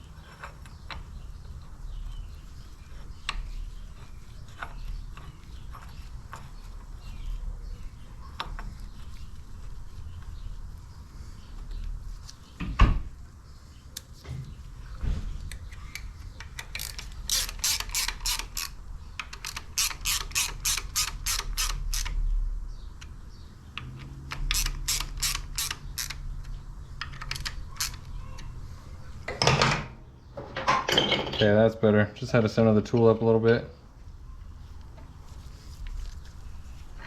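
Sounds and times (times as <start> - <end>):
ratchet wrench clicking: 16.6 - 22.2, 23.8 - 26.2, 27.0 - 28.1.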